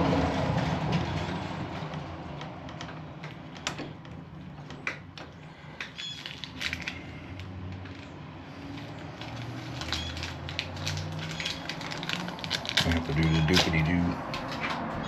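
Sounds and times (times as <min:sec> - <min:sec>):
lock parts clicking and rustling: 0:09.8 - 0:14.8.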